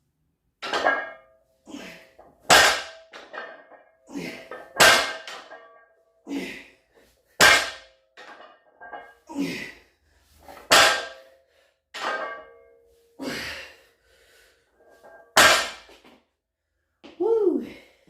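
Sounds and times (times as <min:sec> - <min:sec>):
barbell plates clanging on floor: 0:00.6 - 0:01.4, 0:02.4 - 0:06.0, 0:07.4 - 0:09.2, 0:10.6 - 0:11.3, 0:12.0 - 0:12.8, 0:15.0 - 0:16.0.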